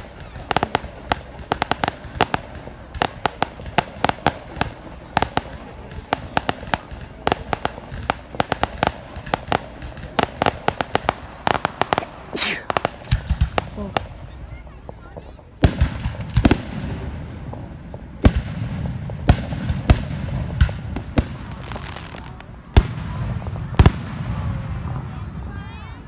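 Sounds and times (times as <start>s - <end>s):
fireworks cracking and popping: 0.0s - 26.0s.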